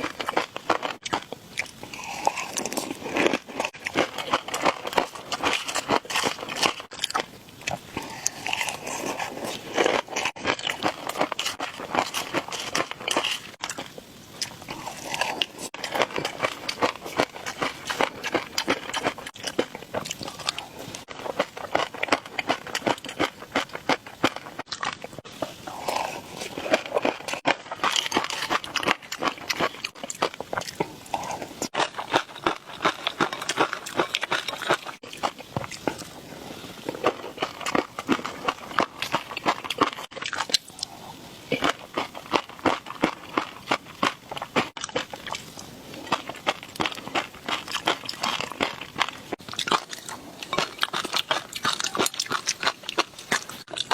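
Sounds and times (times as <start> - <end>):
chewing and crunching: 0.0 - 53.9.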